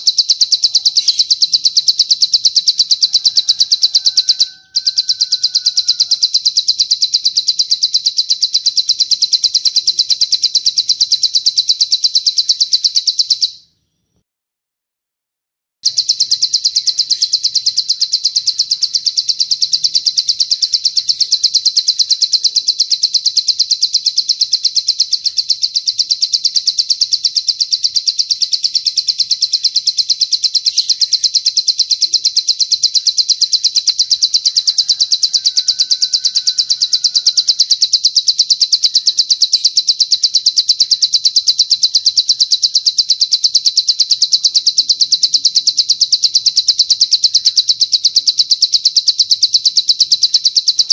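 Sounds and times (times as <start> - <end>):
bird trilling song: 0.0 - 14.2, 15.8 - 50.9.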